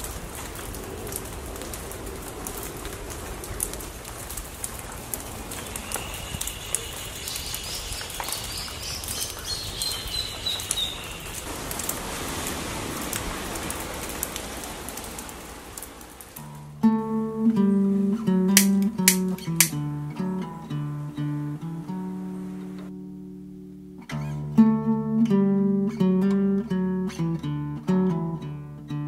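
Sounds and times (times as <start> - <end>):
water drips: 0.0 - 16.8, 17.5 - 22.9
rain on foliage: 0.0 - 27.3
bird calling high thin notes: 18.5 - 19.8.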